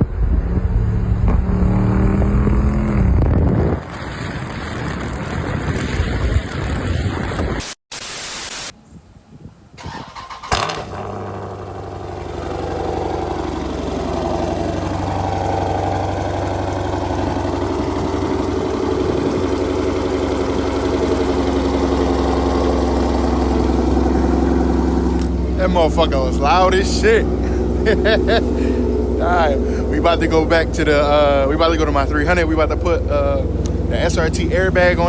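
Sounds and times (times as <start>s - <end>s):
car engine starting and idling: 9.8s - 35.0s.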